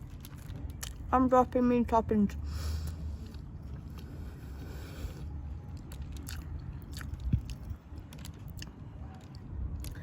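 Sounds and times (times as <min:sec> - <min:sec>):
small crunches and clicks: 0:00.0 - 0:01.1, 0:05.7 - 0:10.0
steady low rumble: 0:00.0 - 0:10.0
person biting and chewing: 0:02.8 - 0:10.0.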